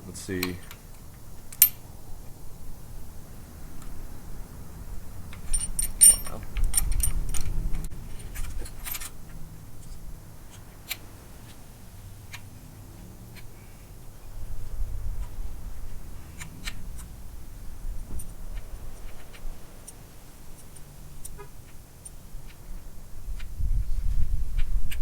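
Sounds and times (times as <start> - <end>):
metal parts clinking and rattling: 1.5 - 1.9, 5.3 - 9.2.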